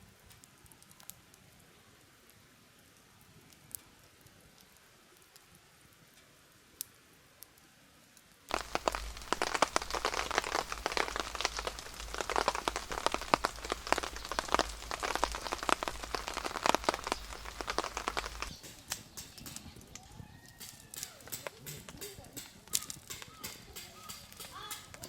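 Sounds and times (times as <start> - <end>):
rain patter: 0.0 - 25.0
isolated drips: 8.5 - 19.7.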